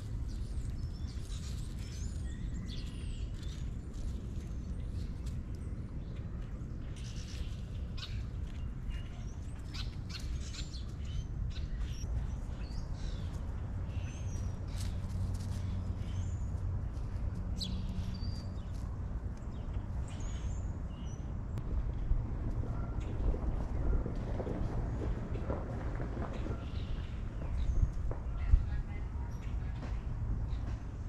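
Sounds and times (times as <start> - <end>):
small birds chirping: 0.0 - 21.6
steady low rumble: 0.0 - 31.0.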